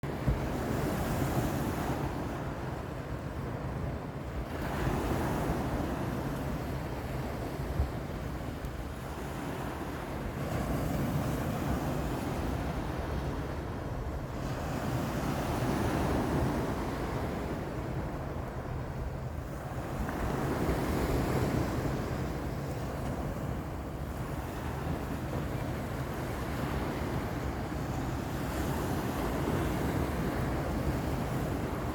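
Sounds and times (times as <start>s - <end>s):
waves breaking on shore: 0.0s - 31.9s
wind rumbling on microphone: 0.0s - 31.9s.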